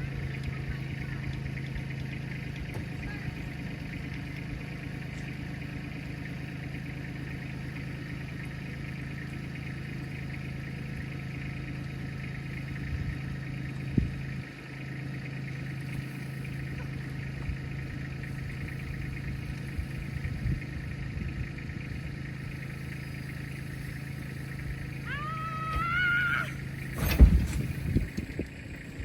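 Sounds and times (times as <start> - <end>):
engine running steadily: 0.0 - 29.0.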